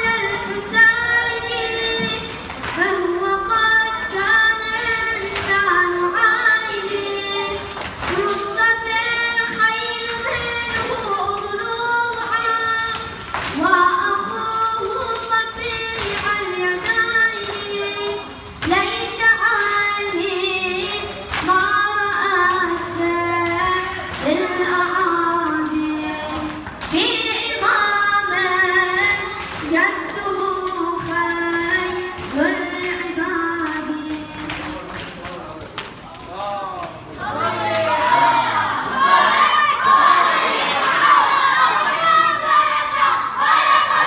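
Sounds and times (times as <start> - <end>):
person chanting in high voice: 37.2 - 44.0.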